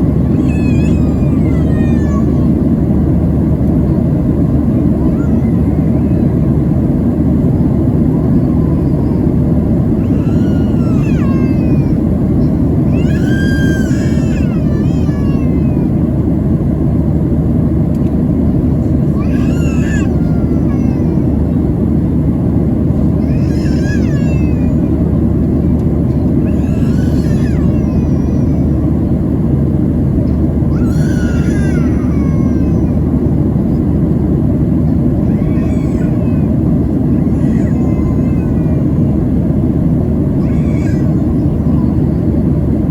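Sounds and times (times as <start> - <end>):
airplane cabin rumble: 0.0 - 42.9
high-pitched wavering cries: 0.3 - 2.5, 10.0 - 12.0, 12.9 - 15.9, 19.1 - 21.4, 23.2 - 24.8, 26.4 - 28.9, 30.7 - 33.1, 35.2 - 39.1.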